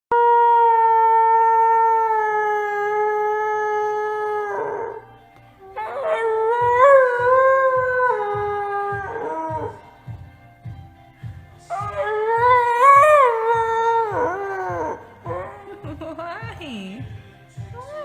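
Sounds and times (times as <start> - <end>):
dog howling: 0.1 - 9.8, 11.7 - 15.7
background music with beat: 4.1 - 18.0.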